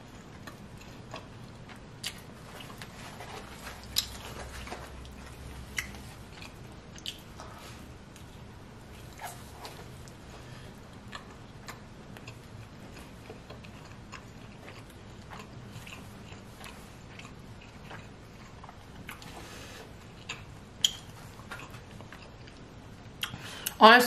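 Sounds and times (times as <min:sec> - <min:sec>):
person chewing food: 0:00.0 - 0:23.8
mouth clicks and smacks: 0:03.8 - 0:07.5, 0:20.2 - 0:22.6, 0:23.2 - 0:23.8.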